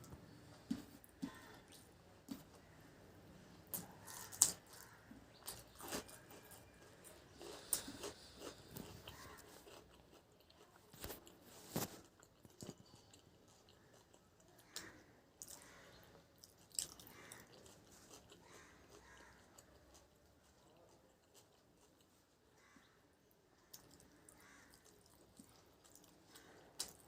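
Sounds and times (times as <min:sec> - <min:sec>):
person chewing food: 0:00.0 - 0:22.9, 0:23.6 - 0:27.0
soft clicks and crunches: 0:07.4 - 0:15.8.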